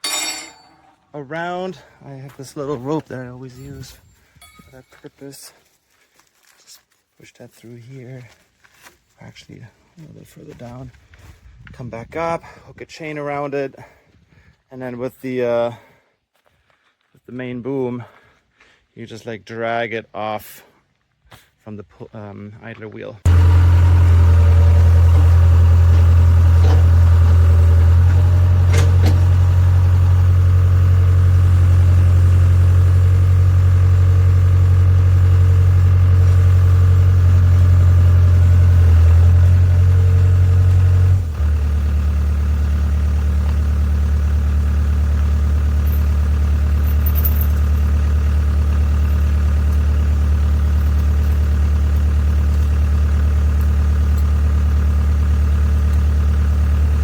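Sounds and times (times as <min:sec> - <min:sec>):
excavator diesel engine running: 0:23.3 - 0:57.0.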